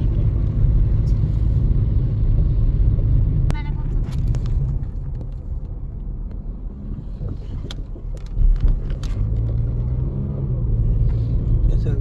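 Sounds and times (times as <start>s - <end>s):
car road rumble inside cabin: 0.0s - 12.0s.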